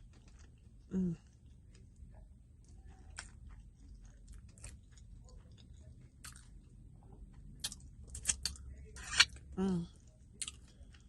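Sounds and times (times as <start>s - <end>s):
person chewing: 0.0s - 2.0s, 2.6s - 11.0s.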